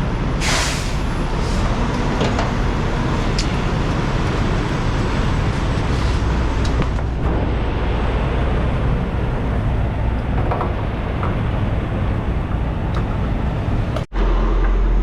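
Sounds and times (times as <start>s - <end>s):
truck engine rumble: 0.0s - 15.0s
short air hiss: 0.4s - 1.6s.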